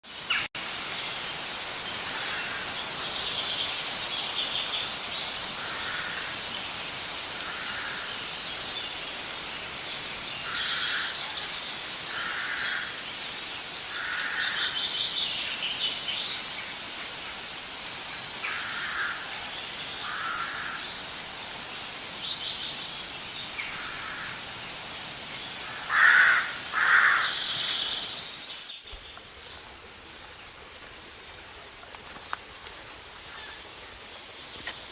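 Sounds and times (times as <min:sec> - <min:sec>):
outdoor hiss: 0:00.1 - 0:34.9
high chattering birdsong: 0:00.3 - 0:34.9.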